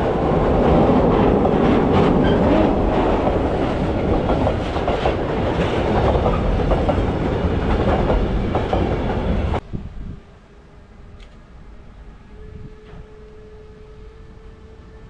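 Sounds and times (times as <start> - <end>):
train wheels clattering over rails: 0.0 - 9.6.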